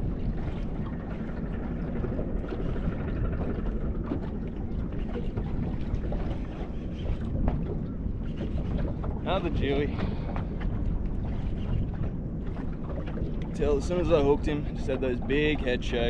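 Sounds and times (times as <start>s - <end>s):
water around boat: 0.0s - 16.0s
wind: 0.0s - 16.0s.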